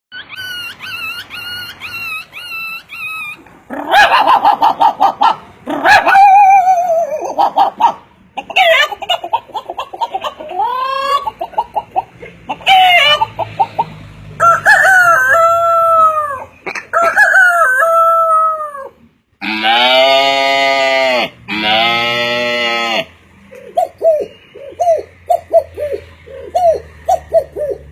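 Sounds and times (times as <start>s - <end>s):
man imitating chicken clucking: 3.7s - 27.9s
man imitating rooster crowing: 14.4s - 23.1s.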